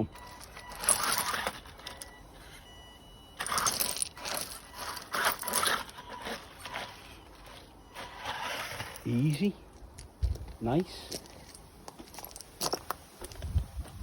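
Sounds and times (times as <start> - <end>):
toy car wheels clattering on track: 3.4 - 7.0.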